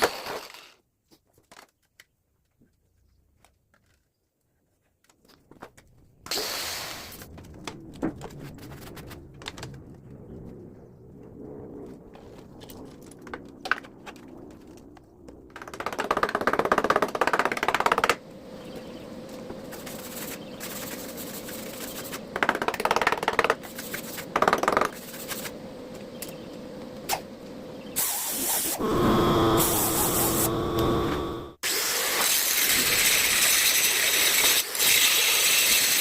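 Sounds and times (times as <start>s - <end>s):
spray paint can hissing: 19.7s - 22.2s, 28.0s - 28.8s, 29.6s - 30.5s.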